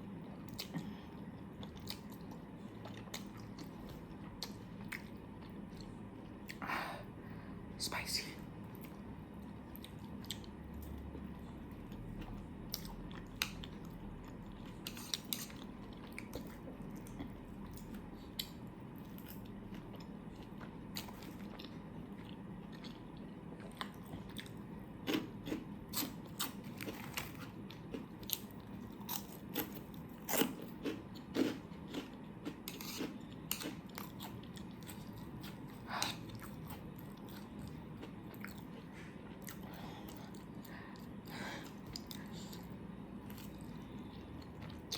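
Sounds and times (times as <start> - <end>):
person chewing and biting food: 12.0 - 44.9.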